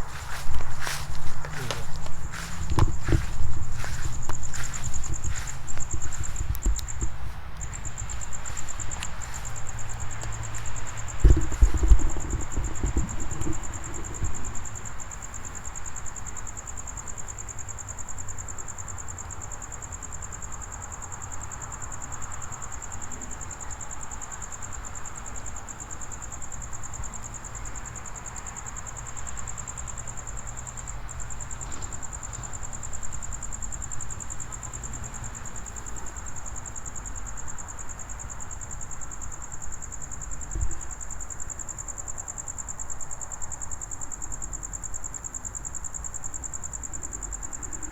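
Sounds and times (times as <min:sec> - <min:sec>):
low rumble of wind or traffic: 0:00.0 - 0:17.8
crickets trilling: 0:00.0 - 0:47.9.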